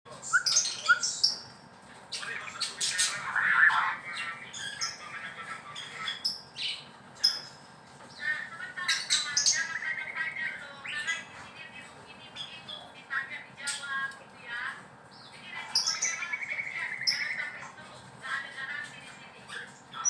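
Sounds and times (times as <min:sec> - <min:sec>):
bird singing whistled notes: 0:00.3 - 0:01.3.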